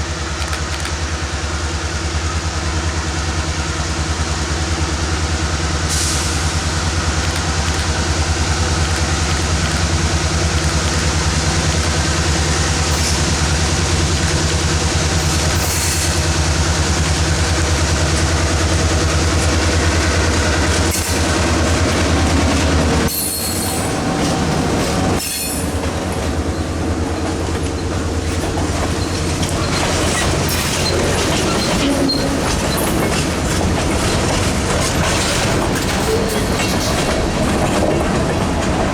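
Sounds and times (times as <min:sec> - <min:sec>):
diesel locomotive drone: 0:00.0 - 0:38.9
rail clatter: 0:04.5 - 0:38.9
wheel squeal: 0:23.0 - 0:25.9, 0:27.6 - 0:37.2.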